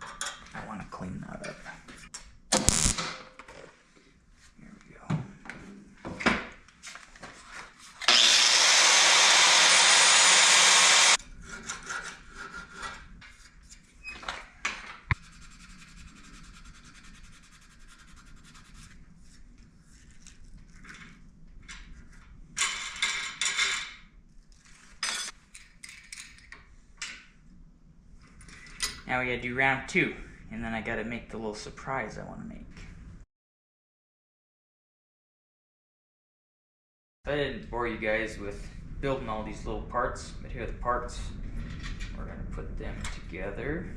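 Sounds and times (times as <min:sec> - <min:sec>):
grinder abrasive rush: 0:08.0 - 0:11.2.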